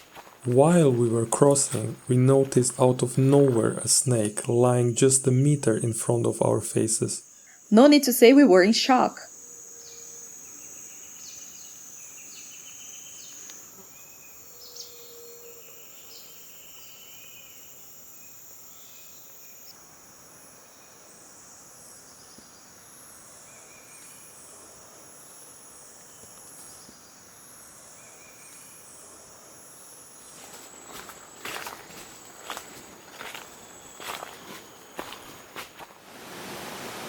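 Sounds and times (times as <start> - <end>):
insect trilling calls: 0.1 - 35.6
high pulsing insect buzz: 0.1 - 35.9
high-pitched insect drone: 9.2 - 35.4.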